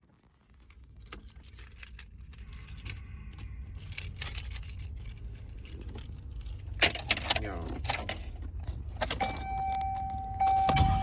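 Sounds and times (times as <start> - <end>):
low steady rumble: 7.5 - 11.0.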